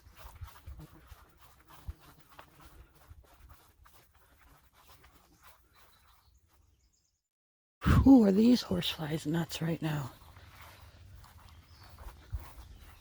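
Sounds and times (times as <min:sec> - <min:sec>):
faint footsteps: 0:00.0 - 0:06.7, 0:09.8 - 0:13.0.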